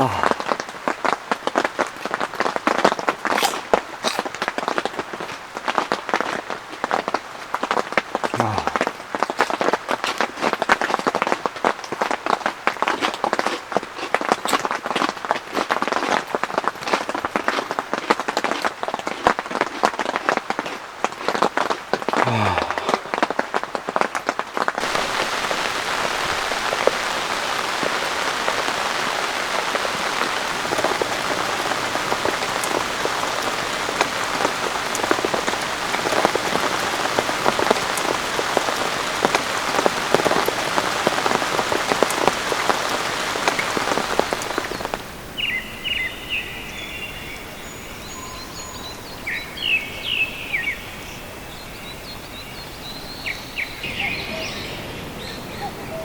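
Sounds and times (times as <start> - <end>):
heavy rain falling: 0.0 - 46.0
bird chirps: 44.6 - 56.0.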